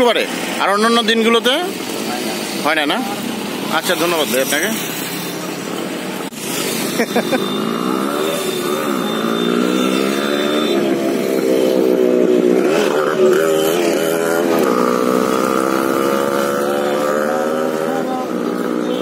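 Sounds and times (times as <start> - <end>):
engine running: 1.5 - 19.0.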